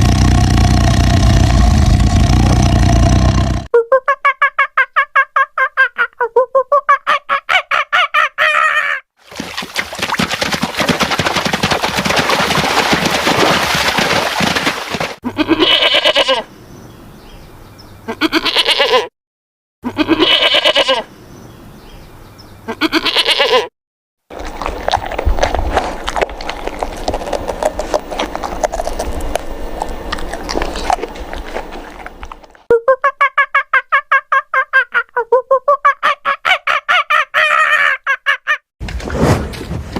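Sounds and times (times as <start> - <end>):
dense noisy animal sound: 0.0 - 3.7, 24.3 - 32.7
farm animals bleating: 15.2 - 16.5, 18.0 - 19.1, 19.8 - 21.1, 22.7 - 23.7.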